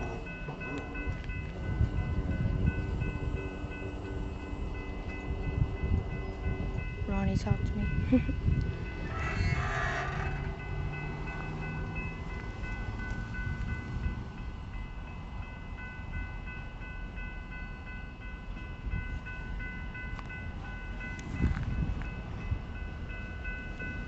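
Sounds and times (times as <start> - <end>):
train rolling rumble: 0.0 - 24.0
high-pitched squeal: 9.0 - 12.1.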